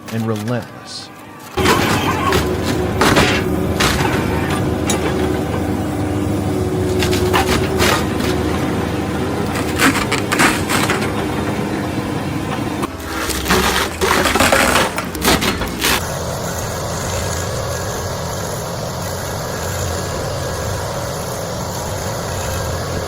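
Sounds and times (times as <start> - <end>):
stump grinder engine running: 1.6 - 23.0
wood crunching: 6.8 - 16.0.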